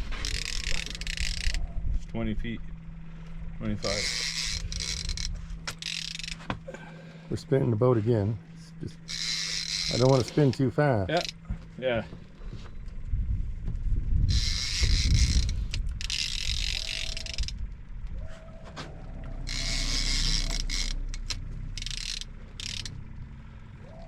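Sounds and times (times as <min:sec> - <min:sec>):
fishing reel ratcheting: 0:00.0 - 0:01.8, 0:03.6 - 0:06.5, 0:08.8 - 0:11.5, 0:14.3 - 0:17.9, 0:19.3 - 0:23.2
steady low rumble: 0:00.0 - 0:24.0.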